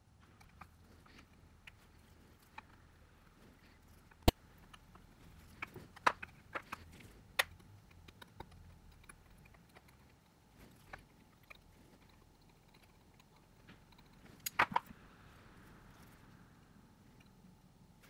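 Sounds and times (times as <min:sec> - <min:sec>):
small tools clicking and tapping: 0:00.2 - 0:15.0.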